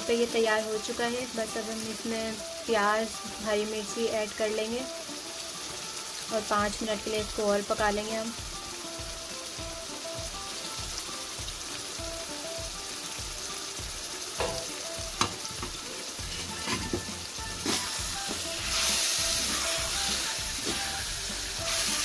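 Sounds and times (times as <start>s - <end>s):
meat sizzling in a wok: 0.0s - 22.0s
steel ladle clinking on pan: 14.4s - 15.4s.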